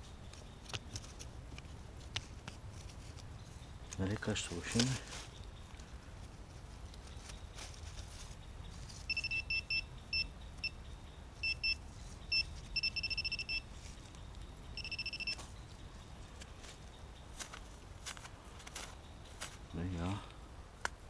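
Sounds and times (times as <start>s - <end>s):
metal detector beeping: 9.1s - 10.8s, 11.4s - 13.7s, 14.7s - 15.5s.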